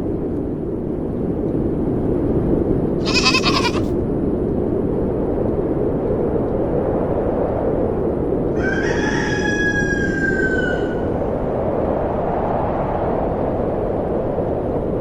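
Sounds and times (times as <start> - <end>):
goat bleating: 3.0 - 3.9.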